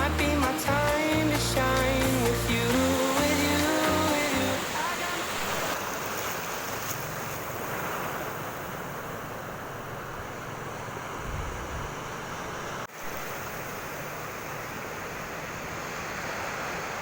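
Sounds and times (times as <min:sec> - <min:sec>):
waves washing onto beach: 0:00.0 - 0:17.0
wind buffeting microphone: 0:11.0 - 0:12.3.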